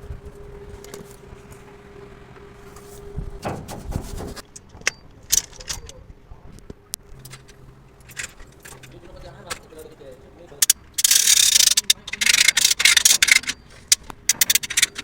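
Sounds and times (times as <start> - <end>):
steady workshop hum: 0.0 - 4.9.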